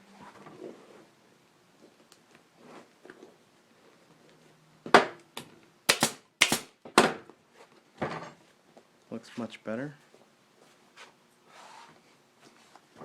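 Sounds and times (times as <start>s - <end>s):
staple gun firing: 5.9s - 6.7s.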